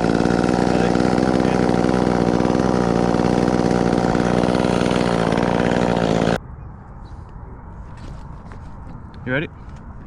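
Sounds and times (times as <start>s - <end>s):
chainsaw engine running: 0.0s - 6.4s.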